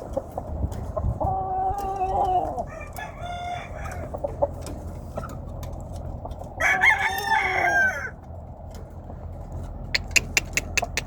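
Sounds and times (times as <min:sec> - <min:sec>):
rooster crowing: 0:02.6 - 0:04.1, 0:06.6 - 0:08.2.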